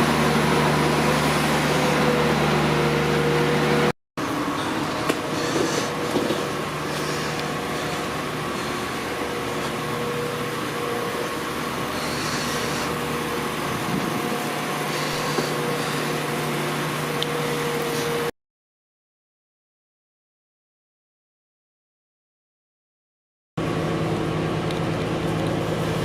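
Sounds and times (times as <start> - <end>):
train diesel engine humming: 0.0 - 18.3, 23.6 - 26.0.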